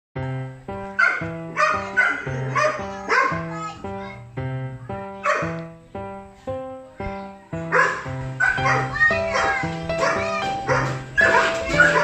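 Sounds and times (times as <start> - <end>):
plucked background music: 0.2 - 12.0
dog barking: 1.0 - 3.4, 5.2 - 5.6, 7.7 - 12.0.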